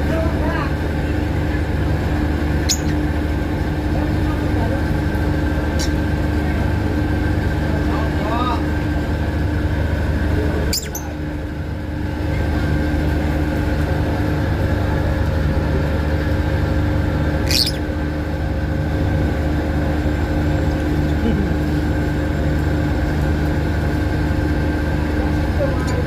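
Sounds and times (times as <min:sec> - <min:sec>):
ferry engines humming: 0:00.1 - 0:26.0
lovebird chirp: 0:02.6 - 0:03.0, 0:10.7 - 0:11.1, 0:17.4 - 0:17.9.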